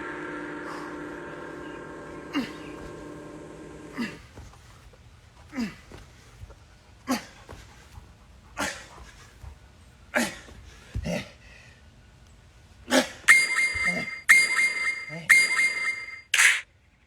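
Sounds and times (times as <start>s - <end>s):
man grunting: 2.3s - 2.8s, 3.9s - 4.3s
electronic timer beeps: 13.3s - 16.6s.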